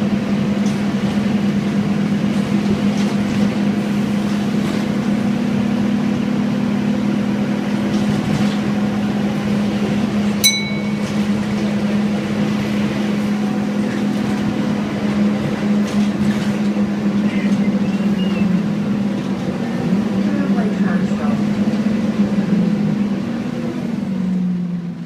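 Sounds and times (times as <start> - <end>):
bus diesel engine humming: 0.0 - 25.0
short bright ding: 10.4 - 11.3.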